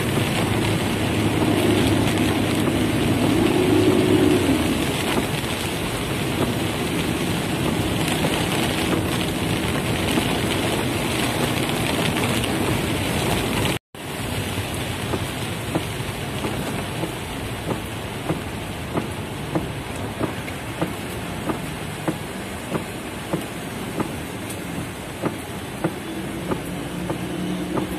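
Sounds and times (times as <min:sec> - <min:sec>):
raindrops ticking: 0:00.0 - 0:03.8, 0:04.8 - 0:13.8, 0:15.0 - 0:27.9
heavy rain drumming on car roof: 0:00.0 - 0:27.9.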